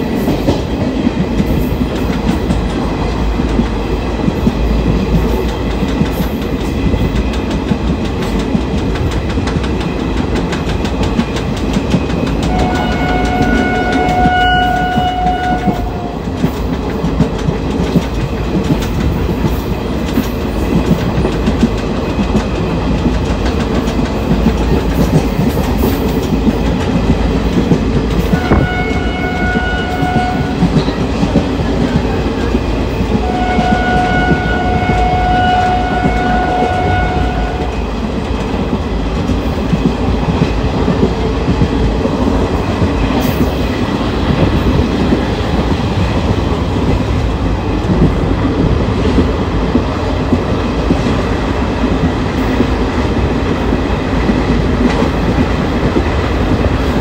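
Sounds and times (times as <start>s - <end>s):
train rumble: 0.0s - 57.0s
train horn blasts: 12.4s - 16.3s, 28.3s - 31.0s, 33.2s - 37.9s.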